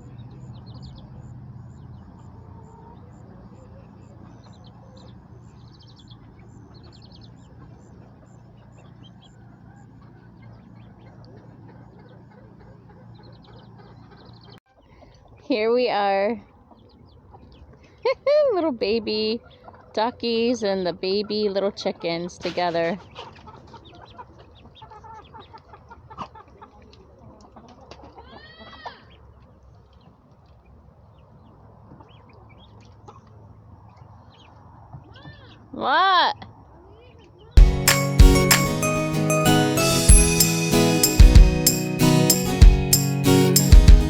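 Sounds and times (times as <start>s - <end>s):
chicks and ducklings peeping: 0.0s - 15.5s, 16.4s - 18.0s, 19.4s - 20.2s, 21.1s - 35.7s.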